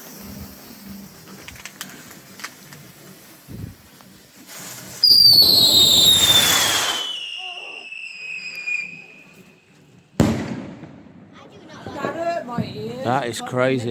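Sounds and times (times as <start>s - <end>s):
rushing hiss: 0.0s - 9.1s
firework piercing shriek: 0.0s - 10.5s
faint firework crackles: 0.0s - 13.9s.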